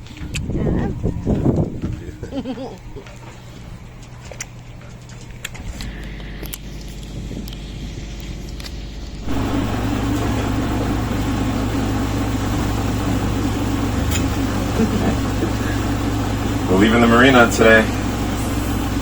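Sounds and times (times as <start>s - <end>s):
steady machine hum: 5.6s - 19.0s.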